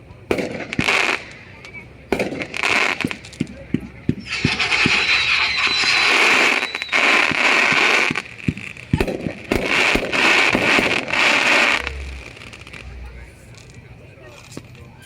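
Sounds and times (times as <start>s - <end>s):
fireworks hissing and crackling: 0.0s - 15.0s
thin whistle: 4.2s - 7.6s.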